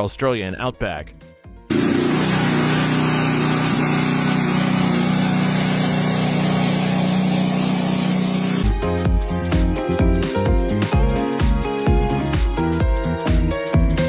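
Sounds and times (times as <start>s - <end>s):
motor hum: 1.7s - 8.7s
strong hiss: 1.7s - 8.7s.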